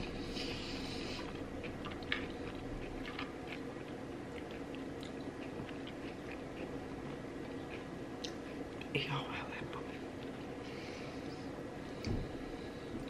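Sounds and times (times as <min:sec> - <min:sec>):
chewing mouth sounds: 0:00.4 - 0:08.9.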